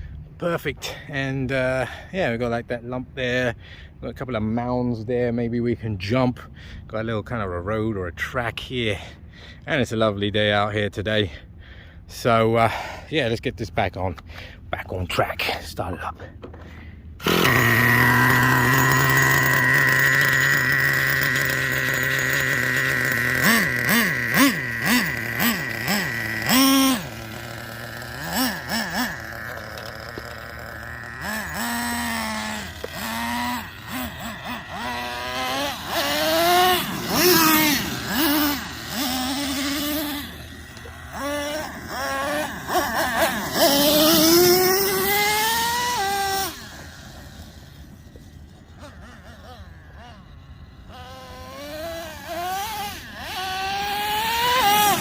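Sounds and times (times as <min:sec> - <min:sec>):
nitro engine revving: 0:17.2 - 0:55.0.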